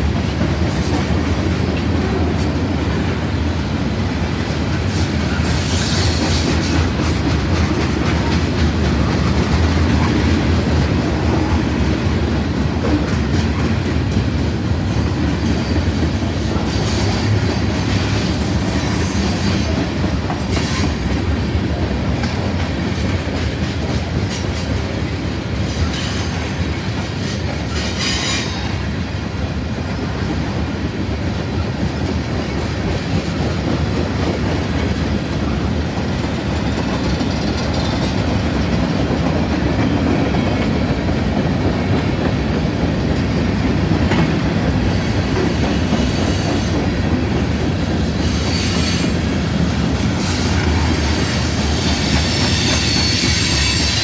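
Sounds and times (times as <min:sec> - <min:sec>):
freight train wheels rumbling on rails: 0:00.0 - 0:54.0
high-pitched wheel squeals: 0:51.6 - 0:54.0.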